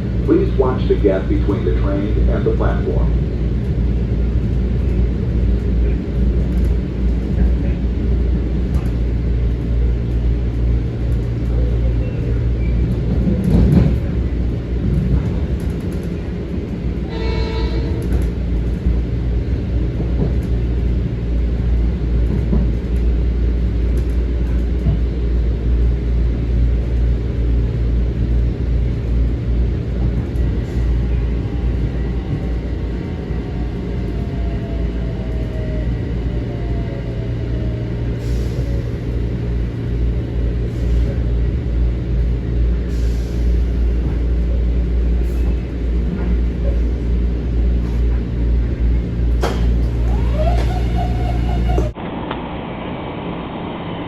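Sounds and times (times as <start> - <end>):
electric train rumble: 0.0 - 54.0.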